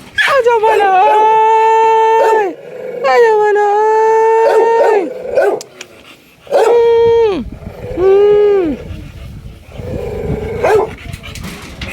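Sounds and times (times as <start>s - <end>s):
dog howling: 0.2s - 3.4s, 4.1s - 5.6s, 6.5s - 9.1s, 9.7s - 11.0s
dog yipping: 10.6s - 10.9s.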